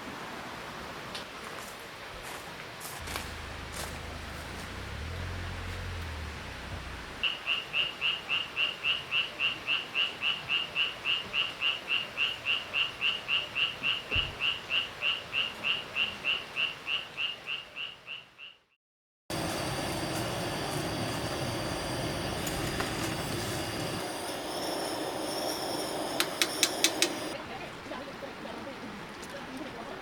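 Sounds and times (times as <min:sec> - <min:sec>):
cricket chirping: 0:19.3 - 0:27.4.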